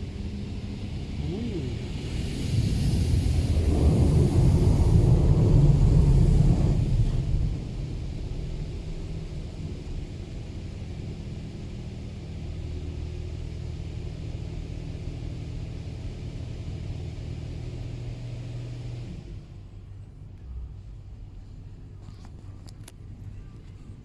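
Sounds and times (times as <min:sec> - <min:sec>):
high-pressure water spray hissing: 0:00.0 - 0:08.7
low even hum: 0:00.0 - 0:18.0.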